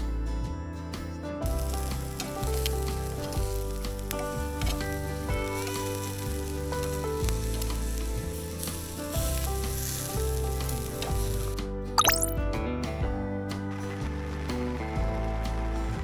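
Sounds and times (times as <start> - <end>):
background music: 0.0 - 16.0
food sizzling in a pan: 1.5 - 11.6.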